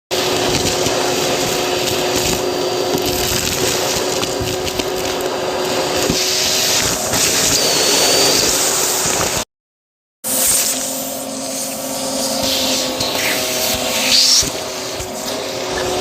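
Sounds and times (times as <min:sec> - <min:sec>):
debris clicking through vacuum: 0:00.1 - 0:06.2
vacuum cleaner running: 0:00.1 - 0:09.5, 0:10.2 - 0:16.0.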